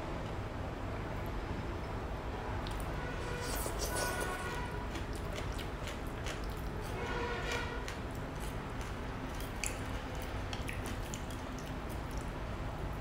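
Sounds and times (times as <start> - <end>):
soft chewing: 2.6 - 12.4.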